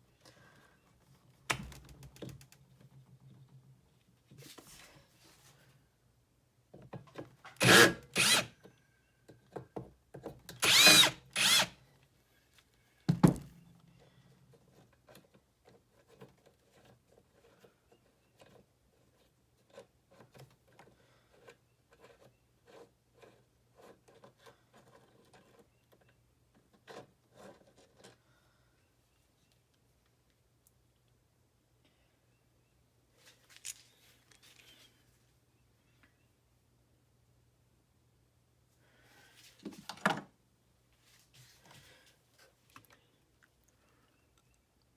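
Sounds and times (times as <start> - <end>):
power drill whirring: 7.6 - 8.5, 10.6 - 11.8.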